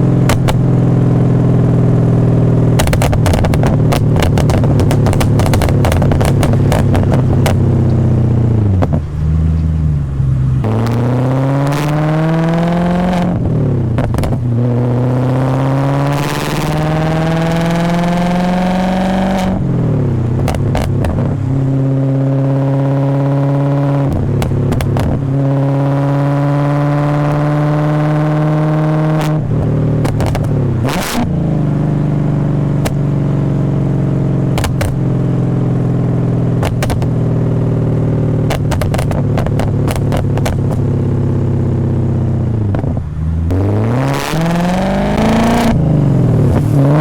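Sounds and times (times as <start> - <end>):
exhaust crackles: 0.0 - 26.5, 27.3 - 47.0
car engine revving through gears: 0.0 - 47.0.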